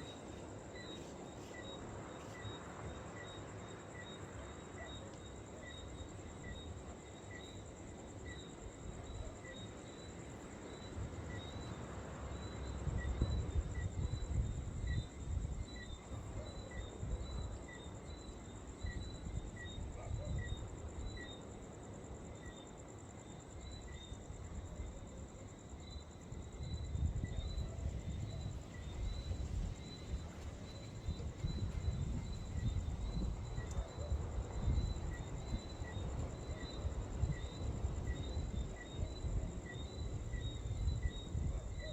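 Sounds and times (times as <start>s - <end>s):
insects trilling: 0.0s - 41.9s
wind rumbling on microphone: 12.4s - 18.1s, 26.2s - 41.9s.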